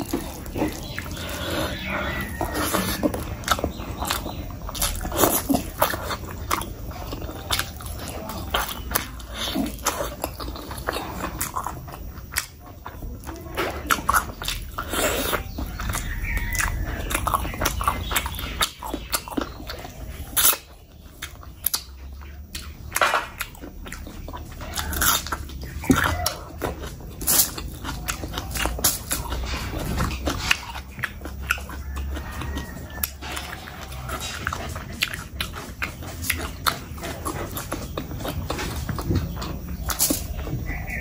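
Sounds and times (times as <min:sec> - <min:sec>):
wet chewing and mouth smacks: 0:00.0 - 0:41.0.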